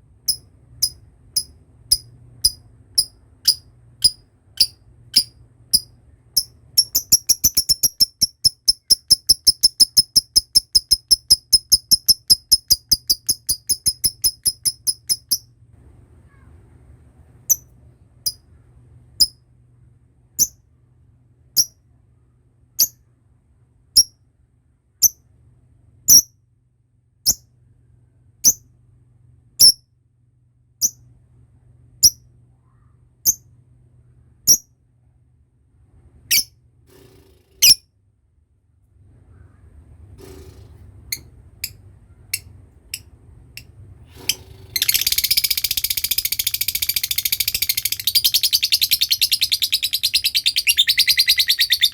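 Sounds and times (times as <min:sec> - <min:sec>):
lovebird chattering trill: 0:00.3 - 0:15.4, 0:44.8 - 0:51.9
lovebird single chirps: 0:44.8 - 0:51.9.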